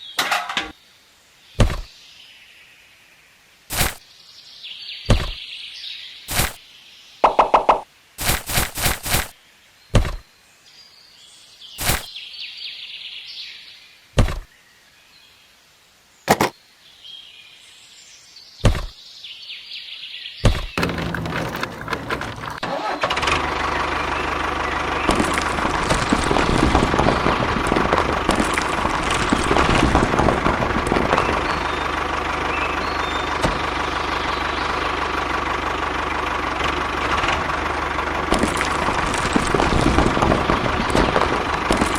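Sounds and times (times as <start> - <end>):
sharp knocks: 1.6 - 1.9, 5.1 - 5.4, 7.2 - 7.9, 16.3 - 16.5, 18.6 - 19.0, 20.4 - 21.4.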